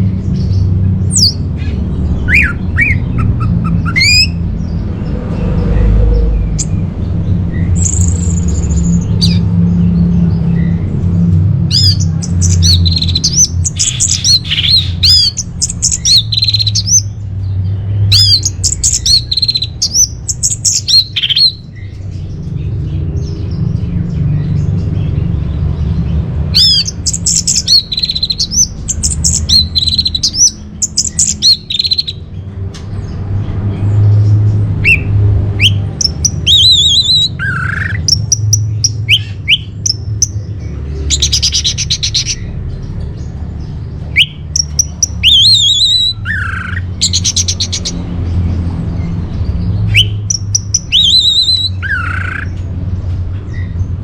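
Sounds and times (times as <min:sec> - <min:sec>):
thrush singing: 0:00.0 - 0:17.2.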